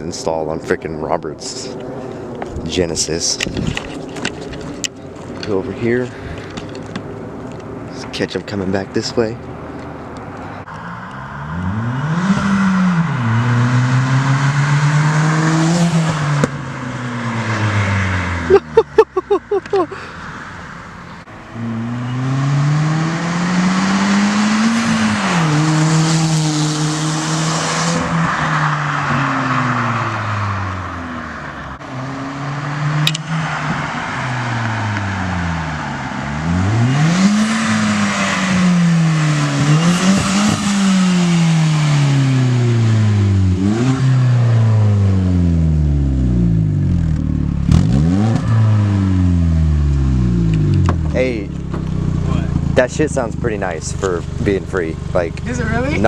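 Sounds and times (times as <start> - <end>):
exhaust cracks: 0.0 - 18.6, 32.8 - 56.0
car engine revving: 0.0 - 56.0.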